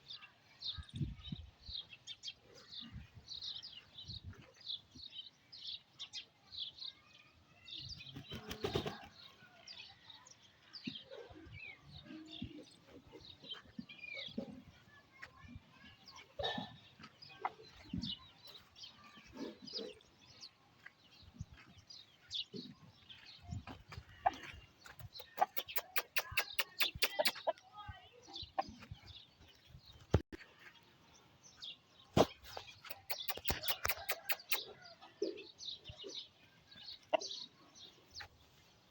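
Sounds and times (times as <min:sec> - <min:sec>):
chicken clucking and calling: 0:23.6 - 0:27.6, 0:32.8 - 0:35.4.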